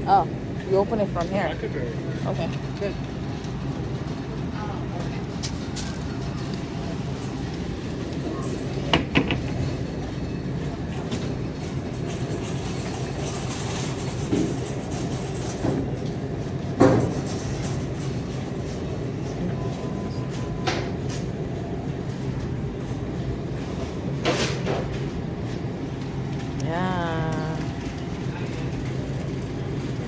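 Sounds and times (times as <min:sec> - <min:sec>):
sharp knocks and clatters: 0:08.9 - 0:09.7.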